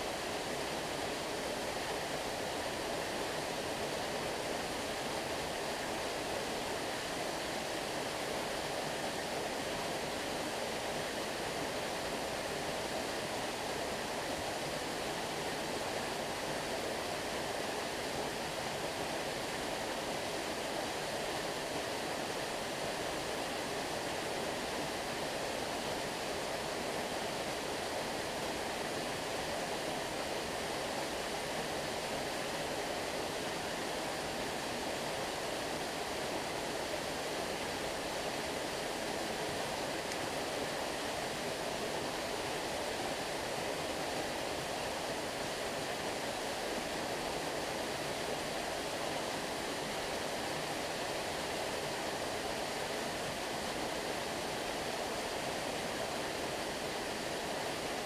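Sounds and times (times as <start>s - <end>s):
stream water flowing: 0.0s - 58.0s.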